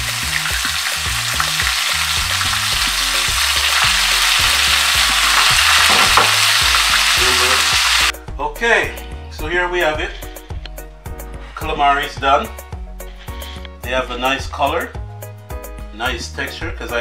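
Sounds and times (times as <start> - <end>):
calamari frying in oil: 0.0 - 8.1.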